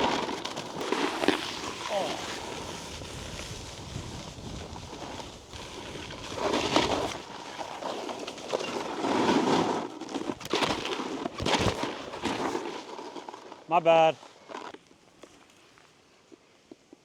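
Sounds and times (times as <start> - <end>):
snowboard scraping over icy snow: 0.0 - 16.6.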